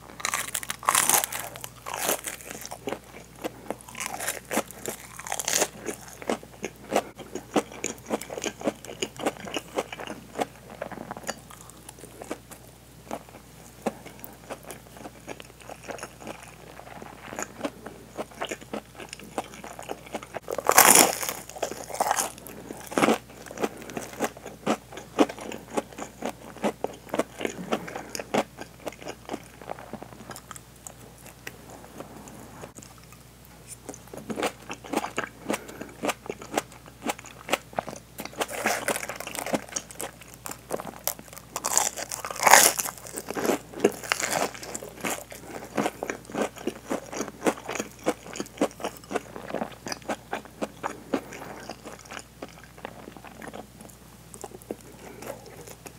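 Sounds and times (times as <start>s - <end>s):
crunching breaded food: 0.0s - 32.0s, 32.7s - 55.9s
wet chewing: 13.1s - 55.9s.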